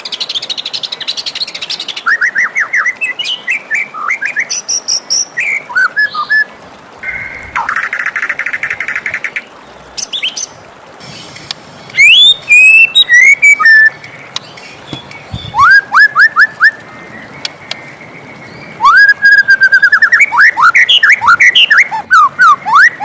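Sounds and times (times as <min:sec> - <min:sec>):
bird singing whistled phrases: 0:12.0 - 0:14.0, 0:15.3 - 0:16.8, 0:18.8 - 0:23.0.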